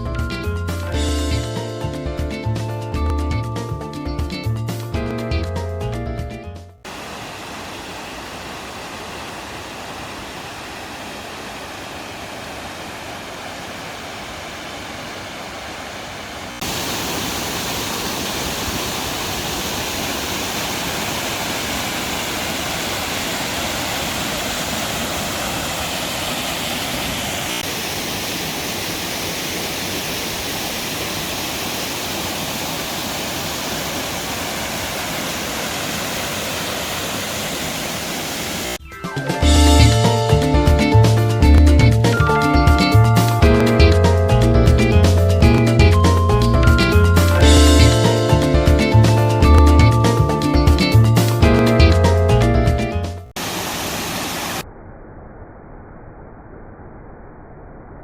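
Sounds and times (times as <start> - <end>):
waterfall roaring: 6.9 - 38.8, 53.3 - 54.6.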